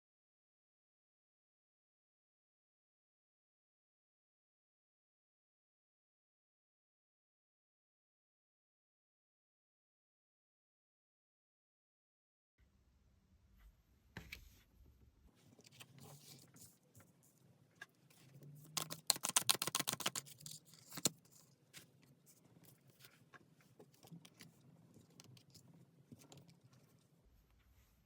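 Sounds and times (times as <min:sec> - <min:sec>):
cards being shuffled: 0:18.6 - 0:21.9.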